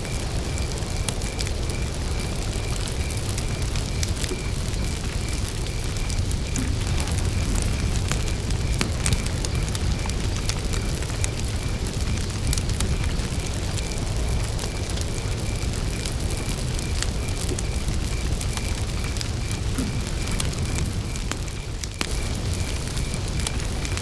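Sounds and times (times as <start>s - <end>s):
campfire crackling and popping: 0.0s - 24.0s
cricket chirping: 0.0s - 24.0s
low rumble: 4.6s - 15.9s.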